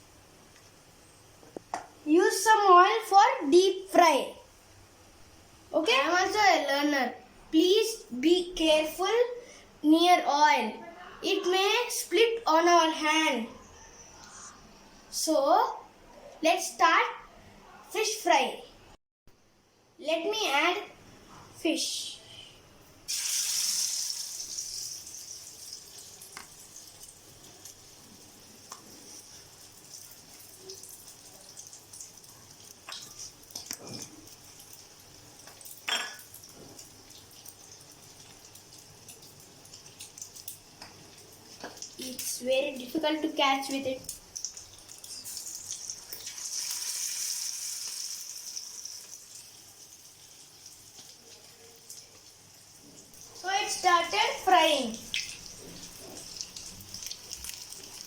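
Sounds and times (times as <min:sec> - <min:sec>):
fish sizzling in hot oil: 0:23.1 - 0:43.0, 0:44.1 - 0:58.0.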